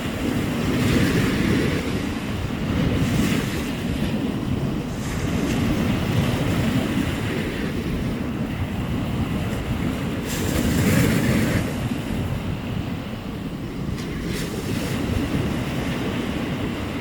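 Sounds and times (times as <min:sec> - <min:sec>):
surf washing: 0:00.0 - 0:17.0
wind rumbling on microphone: 0:00.0 - 0:17.0.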